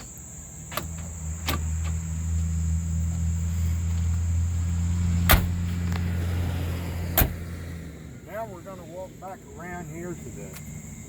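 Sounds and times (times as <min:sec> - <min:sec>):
power door lock actuators: 0:00.0 - 0:02.1, 0:05.2 - 0:05.6, 0:07.2 - 0:07.4
steady low hum: 0:00.0 - 0:11.0.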